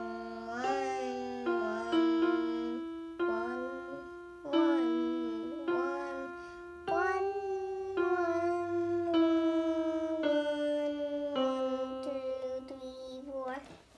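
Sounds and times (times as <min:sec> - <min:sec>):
keyboard playing held notes: 0:00.0 - 0:13.6.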